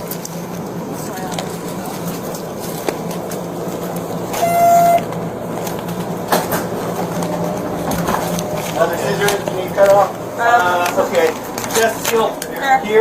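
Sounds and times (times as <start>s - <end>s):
light rail train humming: 0.0s - 13.0s
train horn blast: 4.3s - 5.4s.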